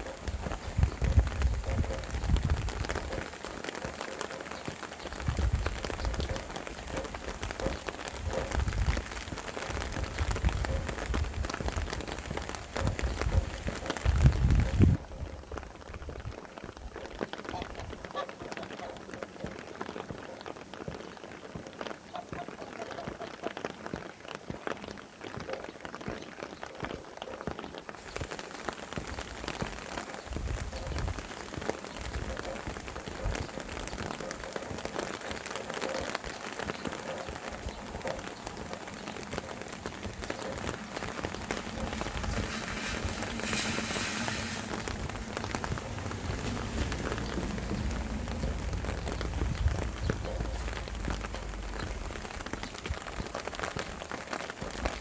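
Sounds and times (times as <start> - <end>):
wind gusts rumbling: 0.0 - 4.0, 4.6 - 18.1, 36.7 - 54.1
steady rain falling: 0.0 - 55.0.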